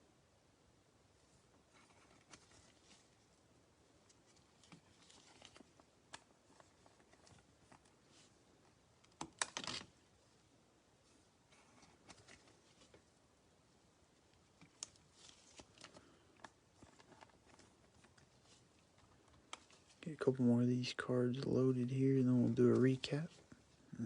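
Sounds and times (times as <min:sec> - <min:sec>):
plastic rustle: 0:01.7 - 0:03.4, 0:04.0 - 0:08.4, 0:14.4 - 0:20.2.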